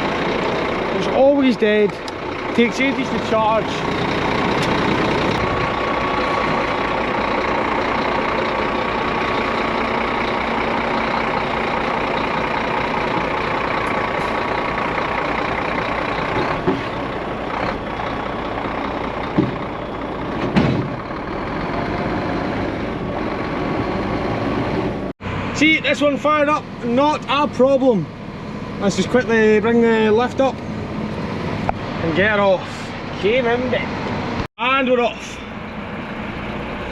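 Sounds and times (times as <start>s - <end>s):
diesel truck engine idling: 0.0s - 36.9s.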